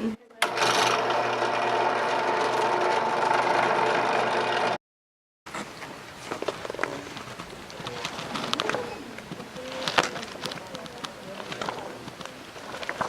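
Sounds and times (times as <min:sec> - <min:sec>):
machine humming: 0:00.0 - 0:04.8.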